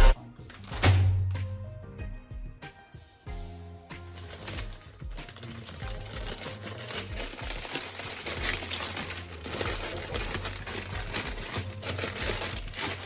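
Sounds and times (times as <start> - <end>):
crinkling and rustling: 4.0 - 13.0.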